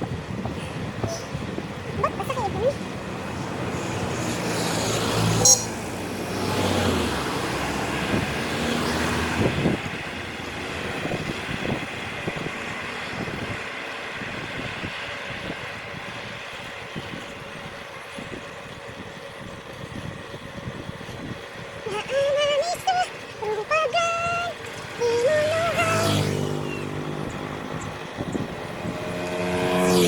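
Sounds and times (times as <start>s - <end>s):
road background noise: 0.0s - 30.0s
vehicle passing by: 2.3s - 16.1s, 23.0s - 30.0s.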